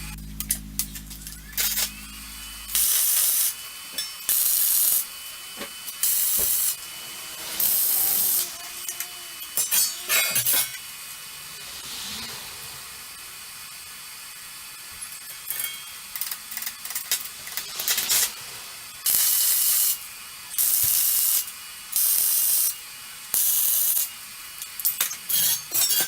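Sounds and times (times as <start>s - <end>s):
welding arc hissing bursts: 6.0s - 9.2s.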